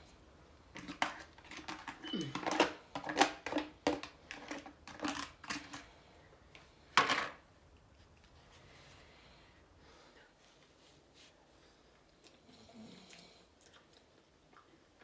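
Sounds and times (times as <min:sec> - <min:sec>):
utensil clatter: 0:00.8 - 0:05.9
eating sounds: 0:12.1 - 0:15.0.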